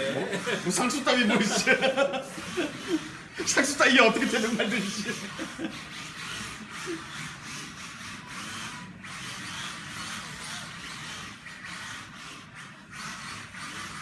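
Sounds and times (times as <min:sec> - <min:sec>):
small electric motors whirring: 0:00.0 - 0:14.0.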